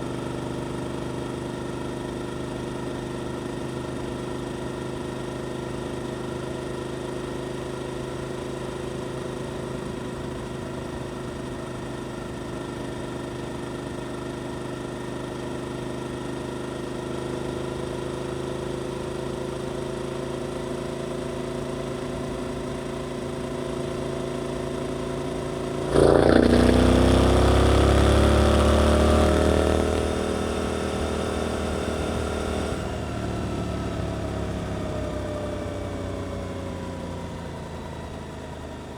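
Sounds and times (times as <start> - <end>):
motorcycle engine revving: 24.6 - 33.2.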